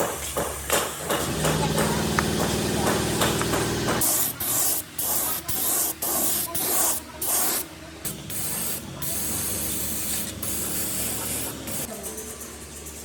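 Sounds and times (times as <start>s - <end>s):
spraying hiss: 4.0s - 11.9s.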